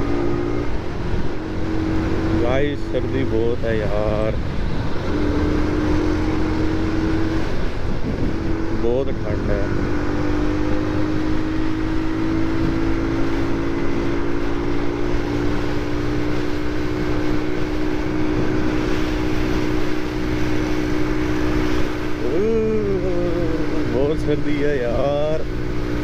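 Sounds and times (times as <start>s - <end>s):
wind on microphone: 0.0s - 10.0s, 11.8s - 13.2s
motorcycle engine droning: 0.0s - 26.0s.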